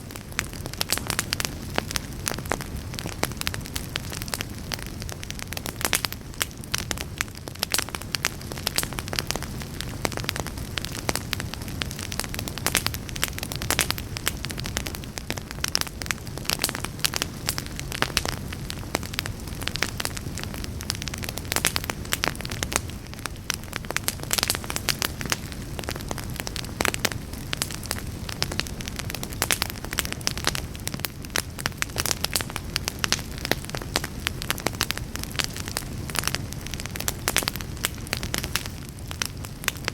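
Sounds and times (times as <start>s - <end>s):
fire crackling and popping: 0.0s - 39.9s
low rush of fire: 0.0s - 39.9s.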